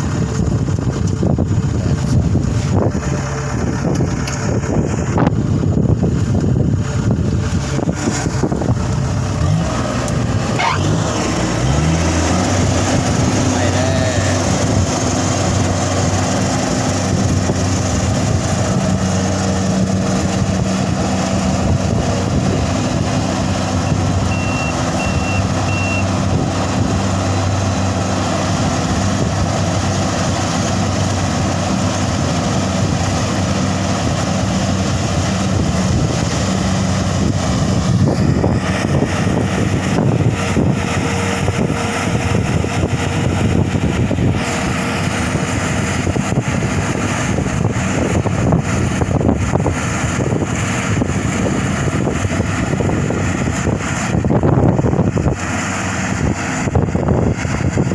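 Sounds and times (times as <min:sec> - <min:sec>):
combine harvester engine running: 0:00.0 - 0:57.9
short high beeps: 0:24.3 - 0:26.1.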